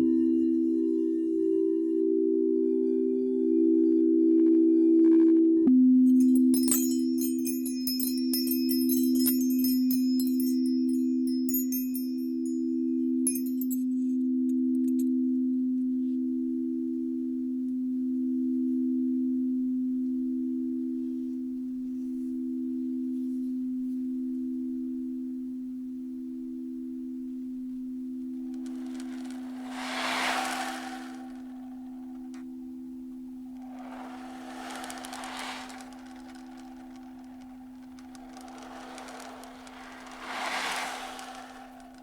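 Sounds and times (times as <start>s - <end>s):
singing bowls ringing: 0.0s - 4.9s, 5.8s - 15.3s
high chimes tinkling: 6.2s - 13.9s, 28.6s - 32.2s, 33.6s - 42.0s.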